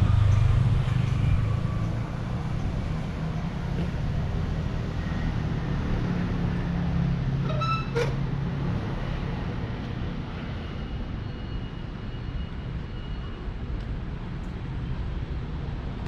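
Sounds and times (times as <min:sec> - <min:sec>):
engine hum: 0:00.0 - 0:10.7
traffic engines rumbling: 0:00.0 - 0:16.0.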